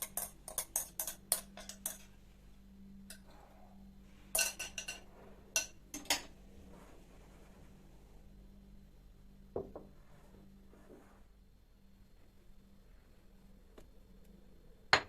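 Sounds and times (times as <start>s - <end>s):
kitchenware clinking: 0.0s - 2.1s, 4.3s - 6.3s.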